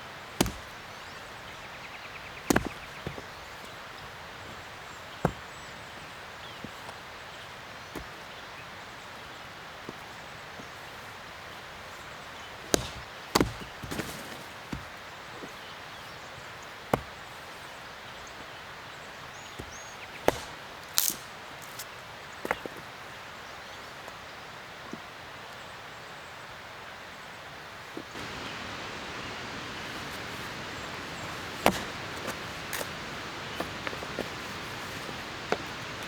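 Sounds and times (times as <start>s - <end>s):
steady background hiss: 0.0s - 36.0s
axe chopping firewood: 0.1s - 6.0s, 12.6s - 15.6s, 16.8s - 17.3s, 19.2s - 22.7s, 29.6s - 36.0s.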